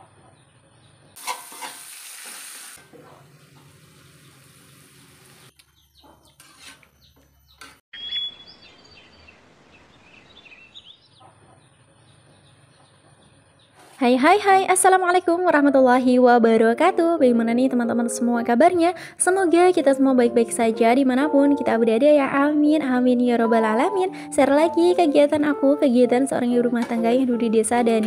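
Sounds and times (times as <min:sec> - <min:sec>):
small birds chirping: 0:00.0 - 0:01.2, 0:04.1 - 0:13.8
food sizzling in hot oil: 0:01.2 - 0:02.8
metal spatula scraping wok: 0:06.3 - 0:06.9.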